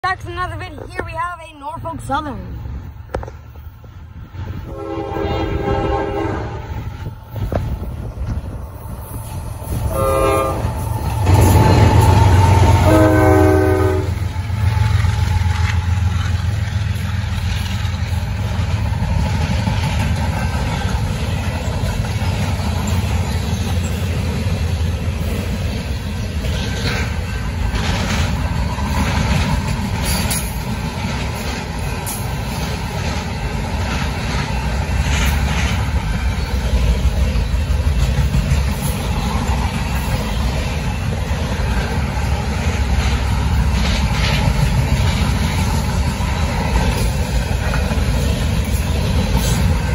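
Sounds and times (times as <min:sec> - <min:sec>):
freight cars rumbling on rails: 0:00.0 - 0:49.9
locomotive horn: 0:04.6 - 0:06.9, 0:09.9 - 0:14.3.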